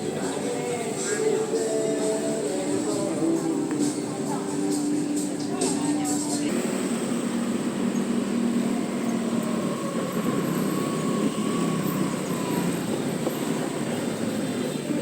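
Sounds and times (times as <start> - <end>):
road and traffic noise: 0.0 - 15.0
motor scooter engine drone: 6.4 - 15.0.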